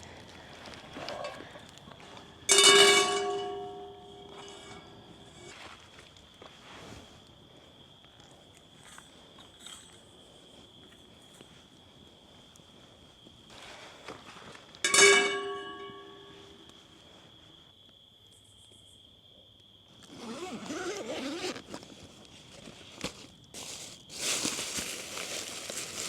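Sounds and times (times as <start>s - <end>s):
rustling and scraping: 0.0s - 7.2s, 20.2s - 26.0s
high insect drone: 0.0s - 12.4s, 15.5s - 26.0s
metal object struck and ringing: 2.5s - 4.8s, 14.9s - 16.4s.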